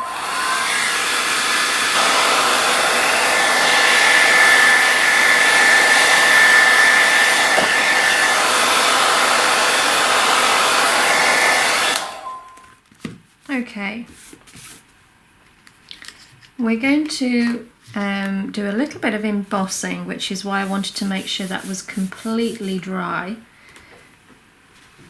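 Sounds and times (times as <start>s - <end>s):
heat gun blowing: 0.0s - 12.5s.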